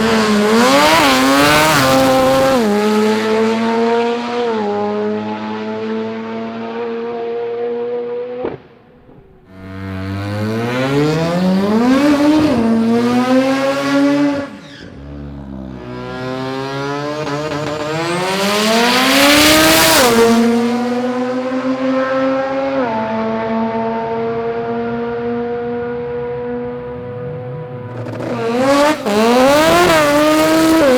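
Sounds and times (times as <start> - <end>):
rotary engine revving hard: 0.0 - 8.6, 9.5 - 15.0, 15.8 - 23.4, 27.9 - 30.9.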